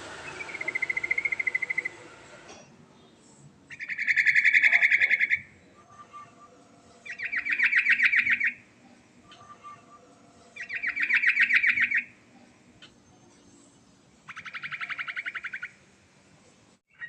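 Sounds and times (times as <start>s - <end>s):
bulbul singing trilled phrases: 3.7s - 8.6s, 9.2s - 12.2s, 14.3s - 15.8s.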